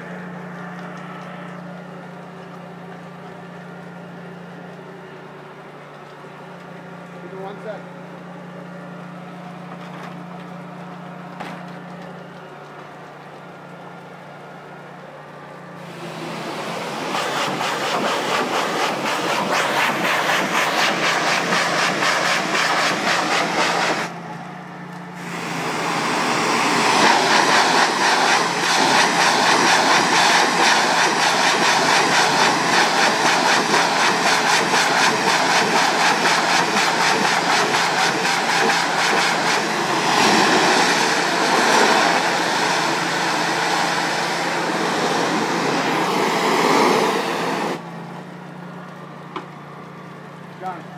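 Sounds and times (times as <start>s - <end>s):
steady low hum: 0.0s - 50.9s
pressure washer spraying water: 15.6s - 24.3s, 25.2s - 47.9s.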